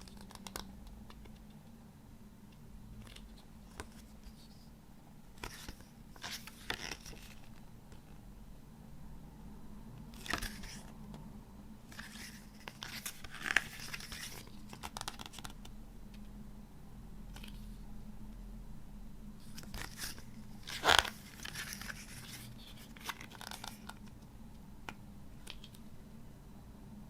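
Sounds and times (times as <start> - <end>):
paper and plastic rustling: 10.2 - 10.9, 12.0 - 15.4, 19.4 - 24.0.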